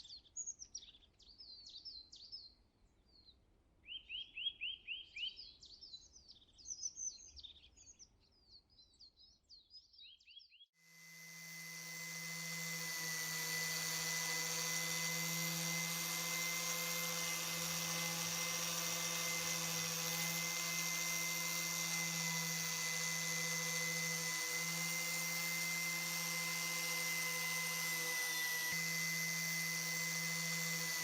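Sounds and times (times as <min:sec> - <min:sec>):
electric power tool running: 0:10.8 - 0:31.0.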